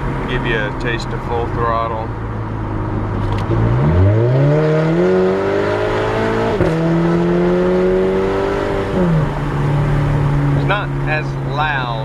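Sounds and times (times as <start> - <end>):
car engine accelerating hard: 2.6 - 12.0.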